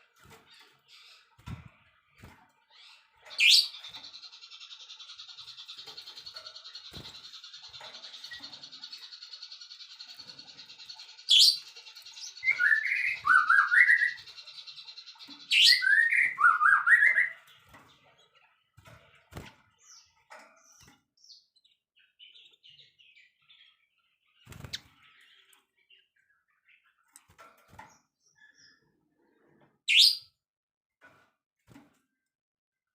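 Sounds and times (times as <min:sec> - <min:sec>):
faint bird chirps: 0:00.0 - 0:30.4
songbird singing: 0:02.6 - 0:18.4.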